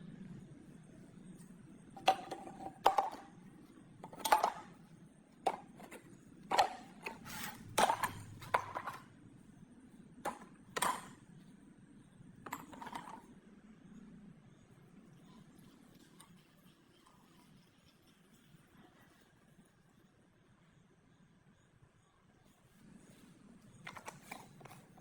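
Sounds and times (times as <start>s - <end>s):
metal parts and tools knocking: 2.0s - 3.3s, 4.0s - 4.8s, 5.5s - 9.0s, 10.3s - 11.2s, 12.5s - 13.2s, 23.9s - 25.0s.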